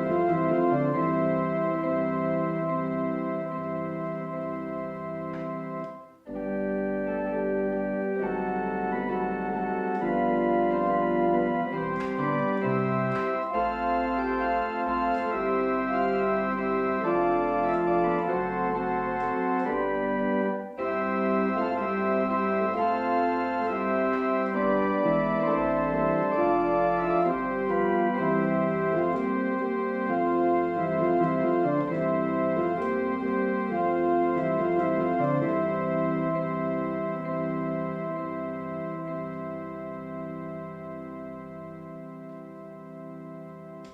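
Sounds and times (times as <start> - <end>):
organ chords: 0.0 - 43.9.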